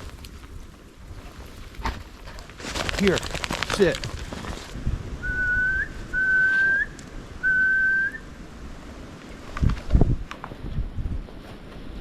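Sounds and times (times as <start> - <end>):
whistled notes: 5.2 - 8.3.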